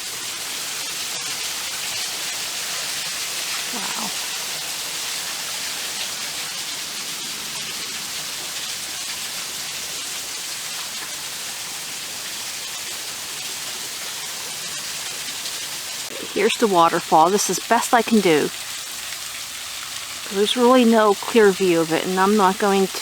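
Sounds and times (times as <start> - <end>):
waterfall rushing: 16.1 - 18.6, 20.2 - 23.0.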